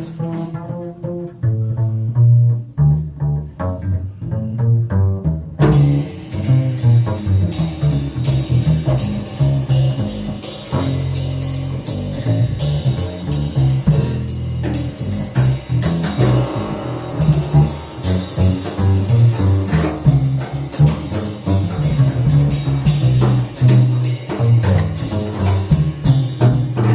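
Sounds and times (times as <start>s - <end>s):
plucked double bass: 0.0s - 26.9s
cymbals shimmering: 14.8s - 22.6s.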